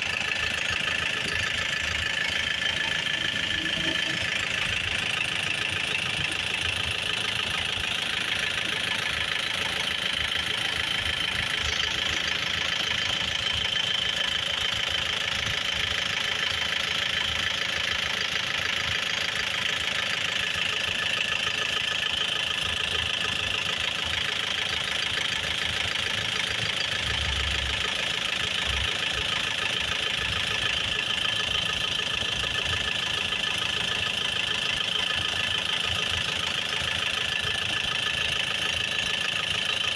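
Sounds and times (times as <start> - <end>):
high-pitched whine: 0.0 - 7.2
car engine idling: 0.0 - 39.9.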